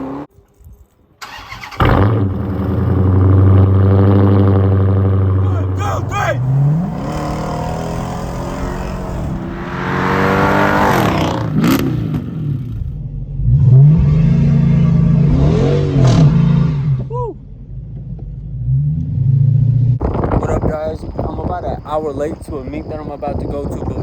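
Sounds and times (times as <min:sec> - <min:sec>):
car engine revving and accelerating: 0:00.0 - 0:00.3, 0:01.8 - 0:05.5, 0:06.2 - 0:17.1.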